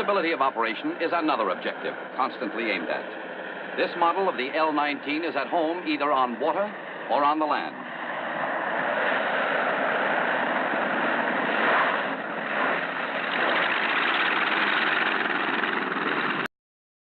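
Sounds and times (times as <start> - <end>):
propeller plane engine drone: 0.0 - 16.5.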